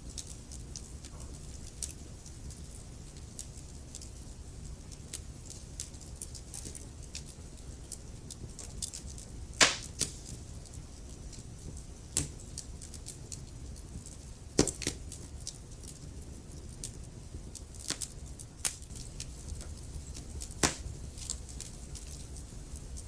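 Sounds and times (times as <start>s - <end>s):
wood fire crackling: 0.0s - 23.0s
loud fire pops: 9.6s - 10.6s, 17.9s - 21.8s.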